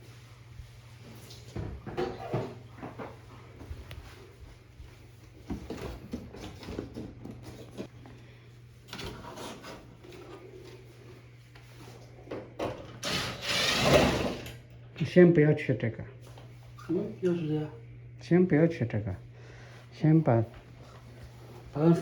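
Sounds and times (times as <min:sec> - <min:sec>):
steady low hum: 0:14.2 - 0:22.0.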